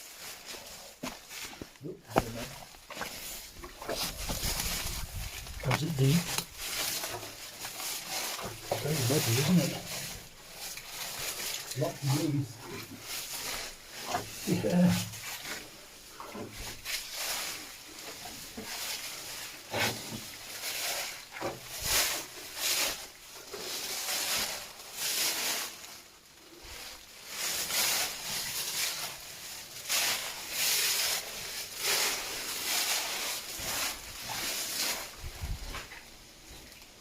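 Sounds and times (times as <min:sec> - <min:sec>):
footsteps in mud and wet leaves: 0:00.0 - 0:37.0.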